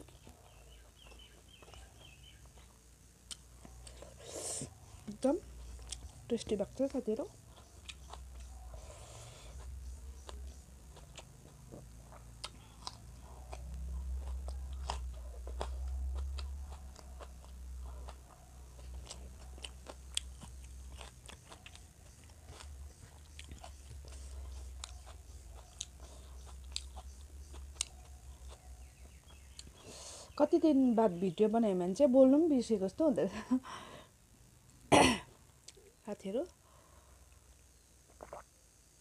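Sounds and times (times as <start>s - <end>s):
chewing with wet mouth clicks: 0.0s - 4.0s, 5.0s - 6.3s, 6.9s - 8.8s, 9.6s - 29.9s, 38.1s - 38.5s
low hum: 0.0s - 39.0s.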